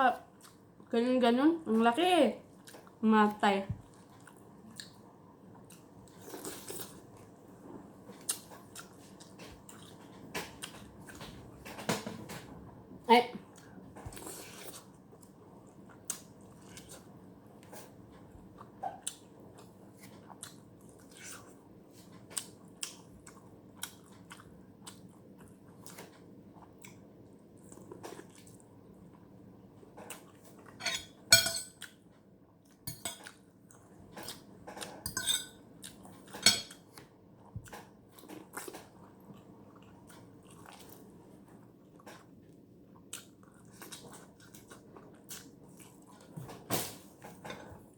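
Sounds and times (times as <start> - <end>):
person chewing noodles: 3.8 - 11.2, 13.5 - 29.3, 35.8 - 46.4
utensils clinking on bowl: 30.8 - 31.8, 32.9 - 33.3, 35.1 - 35.6, 36.4 - 36.7.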